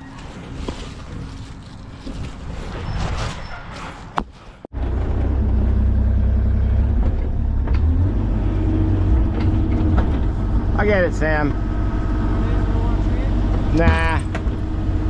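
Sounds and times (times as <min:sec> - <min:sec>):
knocks and scrapes: 0:00.1 - 0:04.7
excavator engine running: 0:04.7 - 0:15.0.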